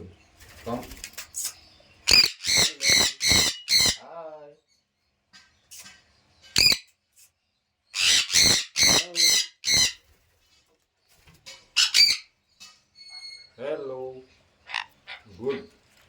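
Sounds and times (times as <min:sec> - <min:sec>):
parrot squawking: 0:02.1 - 0:04.1, 0:06.6 - 0:06.9, 0:08.0 - 0:10.0, 0:11.7 - 0:12.3, 0:14.6 - 0:15.7.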